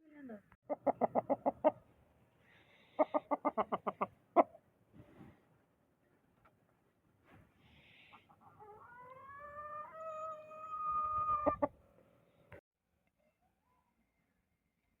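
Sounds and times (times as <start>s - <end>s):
rooster crowing: 8.6s - 11.7s.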